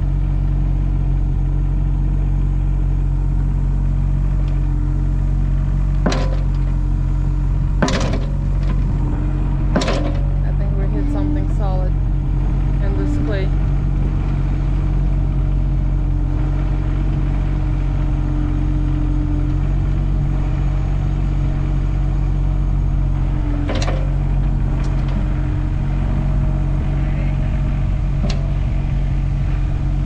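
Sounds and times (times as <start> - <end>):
engine running steadily: 0.0 - 30.0
sharp knocks: 6.0 - 6.6, 7.8 - 8.8, 9.7 - 10.3.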